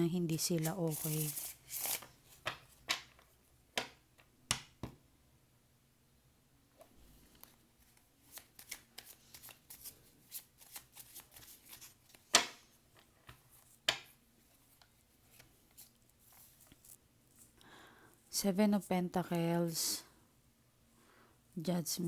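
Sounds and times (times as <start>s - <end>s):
cards being shuffled: 0.3s - 3.2s, 7.2s - 17.5s.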